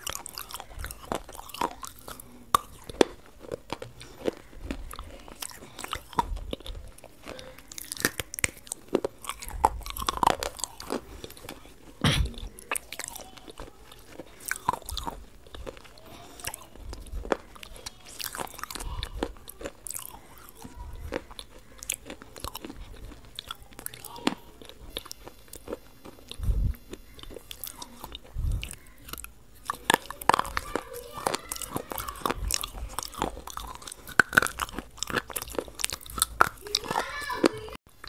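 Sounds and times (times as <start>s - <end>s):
person chewing crunchy food: 0.0s - 38.0s
soft low thumps: 12.0s - 12.4s, 26.4s - 26.8s.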